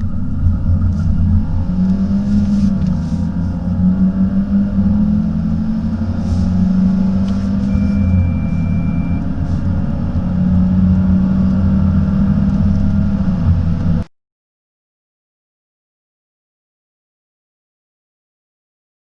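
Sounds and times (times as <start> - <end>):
car engine accelerating: 0.0 - 14.1
thin high tone: 7.0 - 9.5.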